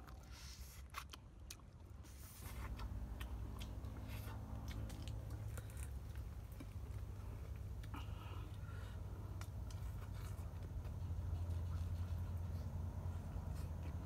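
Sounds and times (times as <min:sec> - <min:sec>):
person biting and chewing chicken: 0:00.0 - 0:08.0.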